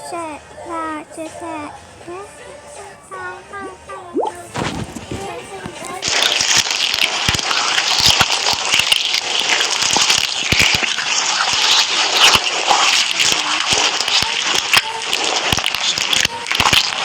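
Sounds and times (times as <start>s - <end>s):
slime squished by hand: 4.2s - 17.0s.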